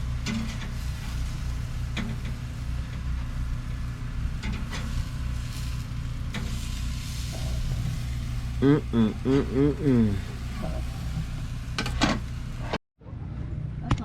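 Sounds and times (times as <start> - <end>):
small engine humming: 0.0 - 12.8.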